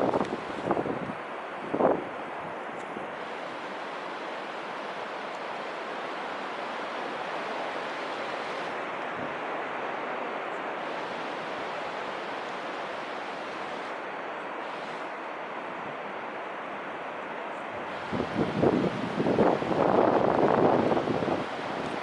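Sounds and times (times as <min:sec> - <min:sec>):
strong wind rushing: 0:17.9 - 0:22.0.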